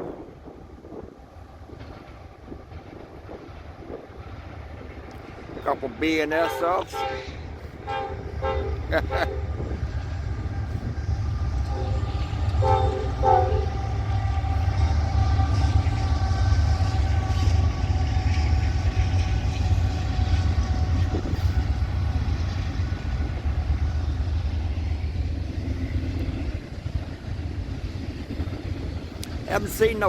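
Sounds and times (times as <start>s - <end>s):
freight train rumbling on rails: 0.0s - 30.0s
train horn notes: 6.3s - 9.8s, 11.5s - 18.4s.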